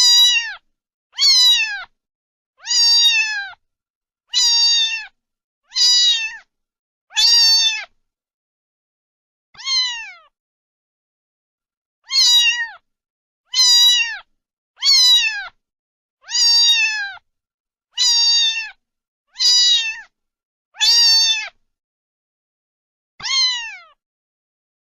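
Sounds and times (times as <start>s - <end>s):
cat meowing: 0.0s - 0.6s, 1.2s - 1.9s, 2.6s - 3.6s, 4.3s - 6.5s, 7.1s - 8.0s, 9.6s - 10.3s, 12.0s - 12.8s, 13.5s - 15.6s, 16.2s - 17.2s, 18.0s - 18.8s, 19.4s - 20.1s, 20.8s - 21.6s, 23.2s - 24.0s.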